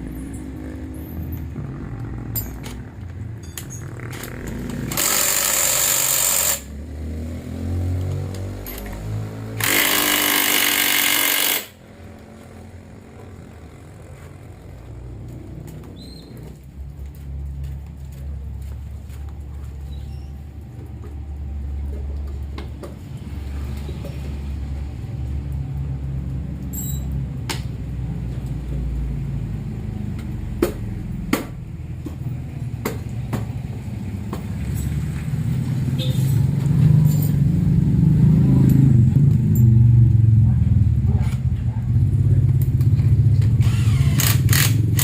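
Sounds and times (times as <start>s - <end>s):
vehicle engine rumbling: 0.0s - 45.0s
sharp metallic clicks: 3.4s - 6.7s, 9.6s - 11.8s, 43.6s - 45.0s.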